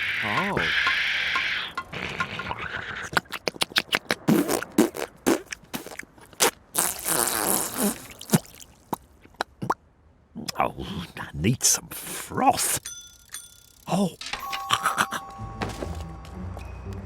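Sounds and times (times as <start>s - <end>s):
sharp clicks and knocks: 0.4s - 3.7s.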